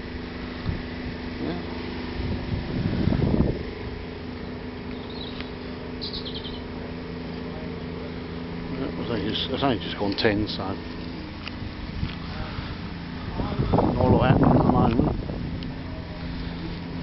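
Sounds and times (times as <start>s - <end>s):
engine running: 0.0s - 17.0s
bird chirping: 4.4s - 6.8s.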